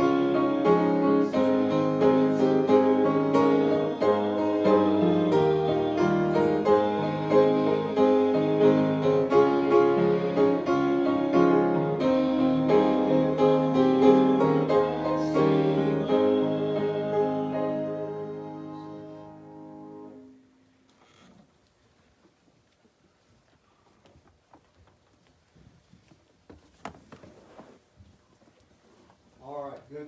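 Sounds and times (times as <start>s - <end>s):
instrumental piano music: 0.0s - 20.4s.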